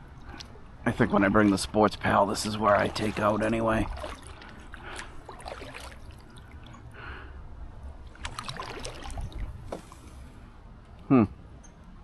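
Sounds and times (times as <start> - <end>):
paddle dipping and splashing: 1.0 - 7.0, 7.9 - 10.4
water trickling off paddle: 2.3 - 7.0, 8.0 - 10.3.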